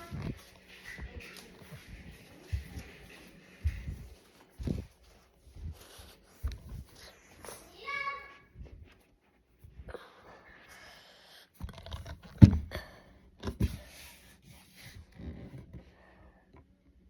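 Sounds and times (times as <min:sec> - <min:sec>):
rustling and scraping handling: 0:00.0 - 0:09.9, 0:13.4 - 0:16.0.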